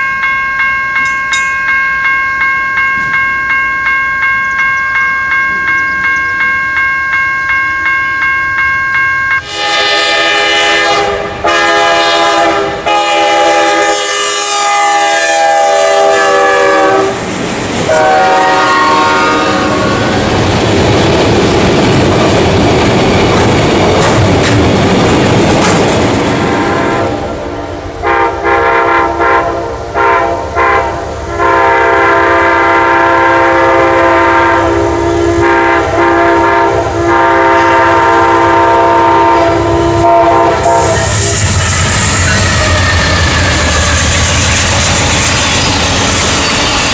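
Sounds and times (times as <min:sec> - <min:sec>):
railroad crossing bell ringing: 0:00.0 - 0:09.9, 0:39.0 - 0:46.9
train horn blasts: 0:09.4 - 0:17.2, 0:17.8 - 0:20.3, 0:26.5 - 0:44.4
freight cars rumbling and clattering: 0:20.2 - 0:27.1.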